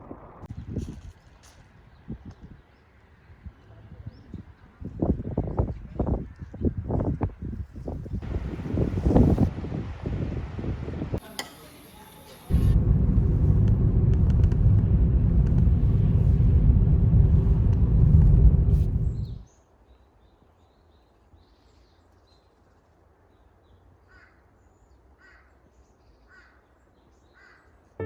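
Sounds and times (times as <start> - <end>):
loud low rumbling: 8.2 - 9.5, 12.5 - 19.4
crows cawing: 24.1 - 24.5, 25.2 - 25.6, 27.4 - 27.8.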